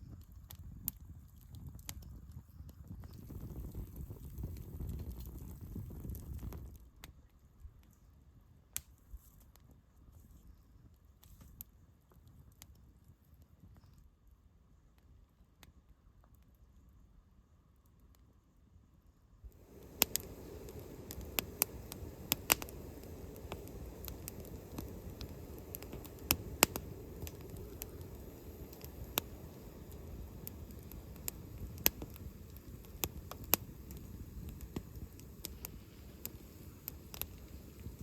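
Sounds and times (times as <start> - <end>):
wood fire crackling in stove: 0.0 - 7.1, 19.5 - 38.0
low steady rumble: 19.5 - 38.0.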